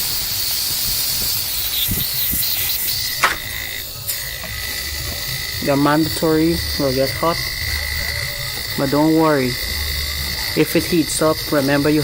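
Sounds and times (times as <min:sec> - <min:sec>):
air compressor humming: 0:00.0 - 0:12.0
air hissing from outlet: 0:00.0 - 0:12.0
thin whine: 0:00.0 - 0:12.0
sharp click: 0:03.2 - 0:03.5.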